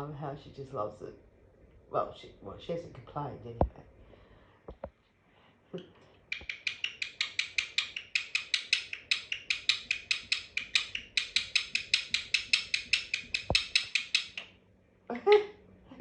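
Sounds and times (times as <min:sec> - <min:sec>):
parrot chirping: 0:06.2 - 0:14.6.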